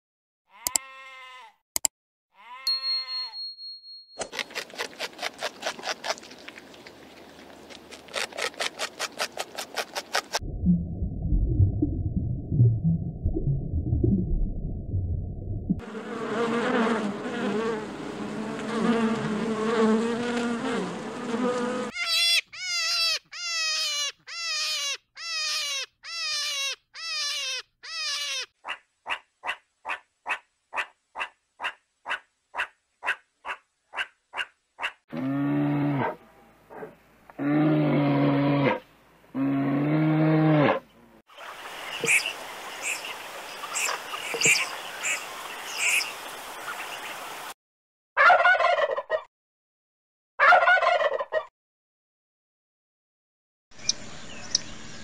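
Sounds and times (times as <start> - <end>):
rapid animal clicking: 4.3 - 10.4
turkey gobbling: 48.2 - 49.3, 50.4 - 51.4.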